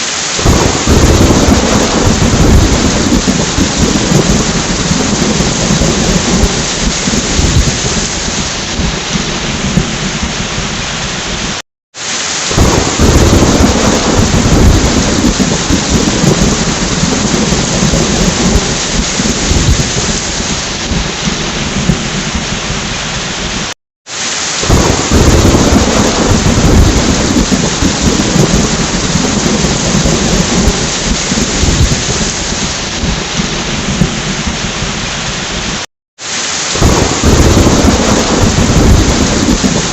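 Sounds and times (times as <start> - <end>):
heavy rain: 0.0 - 39.9
rolling thunder: 0.4 - 11.6, 12.5 - 23.7, 24.6 - 35.8, 36.8 - 39.9.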